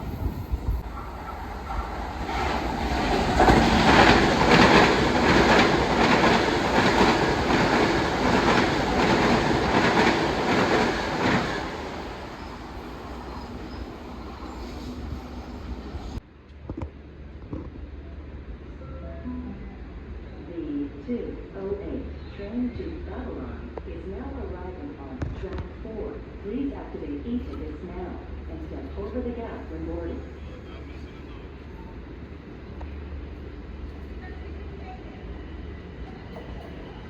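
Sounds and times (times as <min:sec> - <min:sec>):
train wheels clacking over rail joints: 0:01.0 - 0:12.4.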